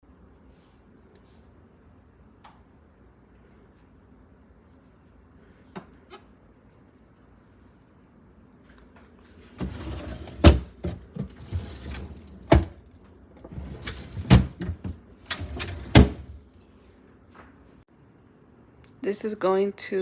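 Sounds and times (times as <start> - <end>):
items clattering in fridge: 9.3 - 16.4
rustling and bumping: 9.6 - 12.8, 13.5 - 16.4.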